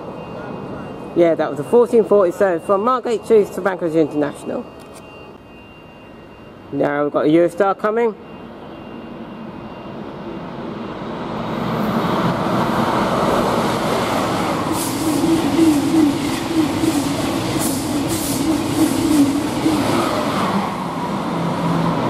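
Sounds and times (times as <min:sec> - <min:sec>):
high-speed train rushing past: 0:00.0 - 0:04.7, 0:08.0 - 0:22.0.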